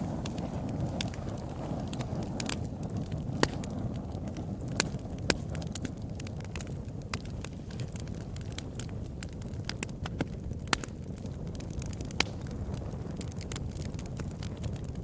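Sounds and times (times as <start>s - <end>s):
fire pops and snaps: 0.0s - 15.0s
low rumble of flames: 0.0s - 15.0s.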